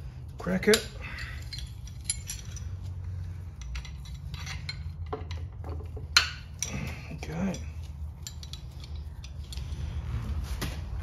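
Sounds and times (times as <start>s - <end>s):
metal hand tools clinking: 0.6s - 9.8s.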